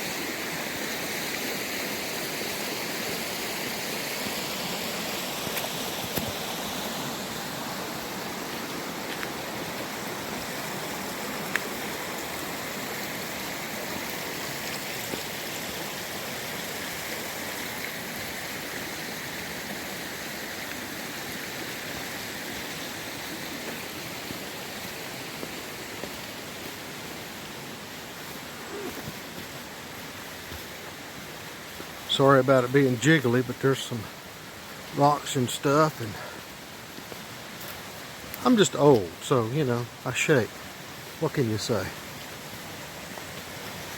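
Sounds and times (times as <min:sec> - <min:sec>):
creek rushing over rocks: 0:00.0 - 0:43.9.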